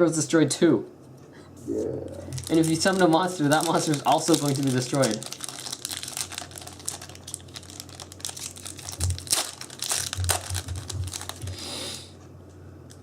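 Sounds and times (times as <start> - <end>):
foil wrappers crinkling and tearing: 2.3 - 11.6.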